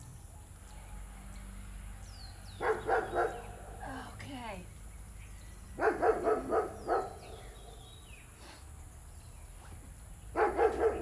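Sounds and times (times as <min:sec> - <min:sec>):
birds chirping: 0:02.5 - 0:03.8
dog barking: 0:02.6 - 0:03.6, 0:05.8 - 0:07.5, 0:10.3 - 0:11.0.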